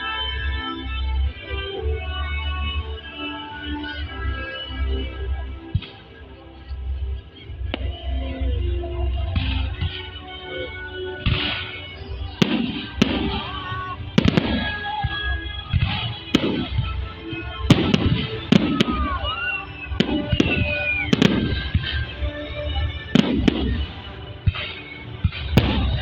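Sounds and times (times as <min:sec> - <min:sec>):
music playing: 0:00.0 - 0:26.0
fireworks bangs: 0:11.2 - 0:26.0
whistling fireworks: 0:11.2 - 0:26.0.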